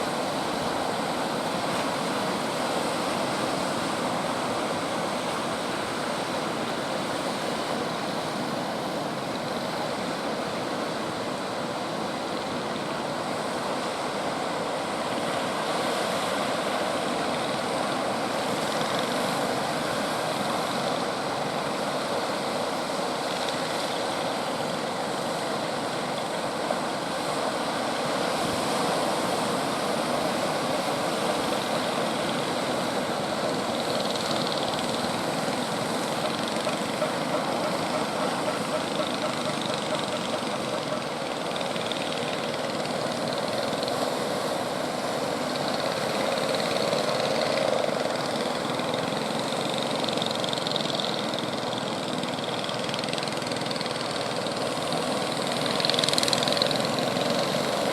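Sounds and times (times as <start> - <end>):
ocean surf breaking: 24.2 - 52.8, 53.7 - 57.9.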